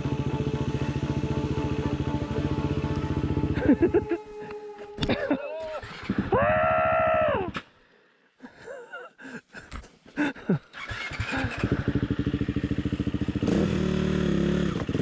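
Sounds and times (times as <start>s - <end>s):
engine idling: 0.0s - 5.0s
dirt bike engine revving: 0.0s - 6.3s, 10.8s - 15.0s.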